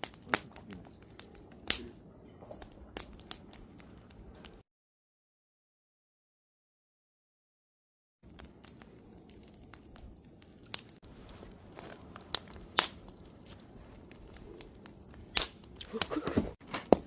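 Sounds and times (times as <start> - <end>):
wood fire crackling: 0.0 - 4.6, 8.2 - 17.0.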